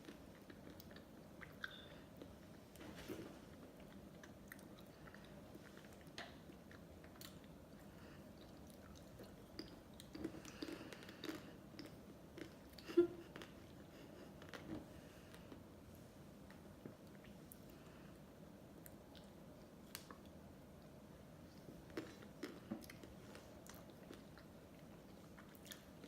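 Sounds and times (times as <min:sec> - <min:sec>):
person chewing ice cream: 0:00.0 - 0:15.7, 0:21.5 - 0:26.0.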